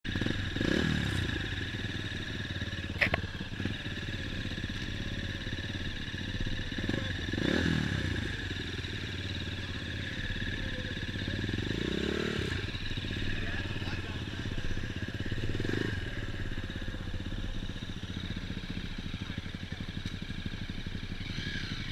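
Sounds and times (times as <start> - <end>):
dirt bike engines running: 0.1 - 21.9
motorbike passing by: 9.6 - 17.2, 21.2 - 21.9.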